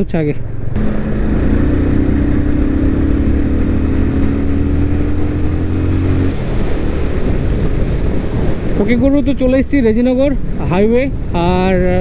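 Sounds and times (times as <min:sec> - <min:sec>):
road noise: 0:00.0 - 0:11.4
rushing wind: 0:00.4 - 0:12.0
motorcycle engine running: 0:00.6 - 0:09.0.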